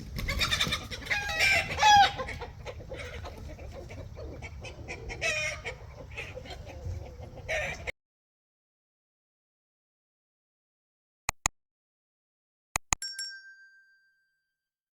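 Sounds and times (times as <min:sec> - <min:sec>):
chickens clucking: 0:00.0 - 0:07.9.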